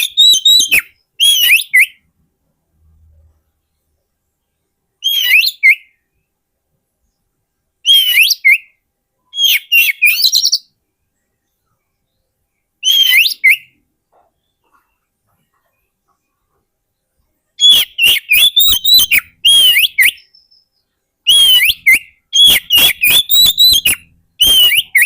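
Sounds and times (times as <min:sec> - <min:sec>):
bird singing whistled notes: 0:00.0 - 0:02.1, 0:05.0 - 0:06.3, 0:07.8 - 0:10.8, 0:11.5 - 0:13.8, 0:17.6 - 0:25.0.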